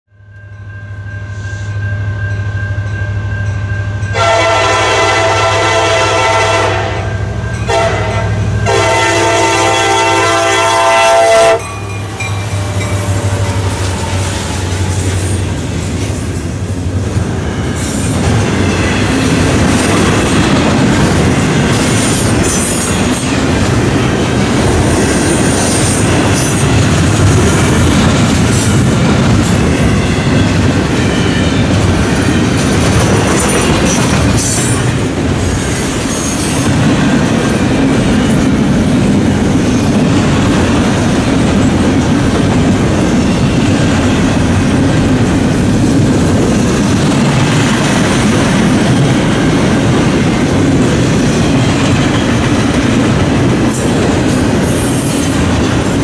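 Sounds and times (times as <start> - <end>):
diesel locomotive engine humming: 0.2 - 56.0
train horn blasts: 4.1 - 15.1.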